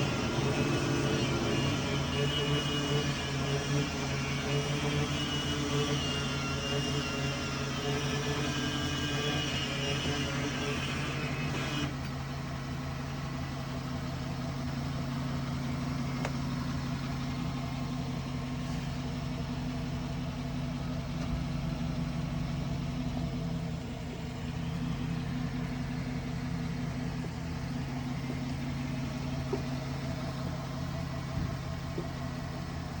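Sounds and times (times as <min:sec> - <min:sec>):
high-pitched whine: 0:00.0 - 0:11.9
truck engine idling: 0:00.0 - 0:33.0.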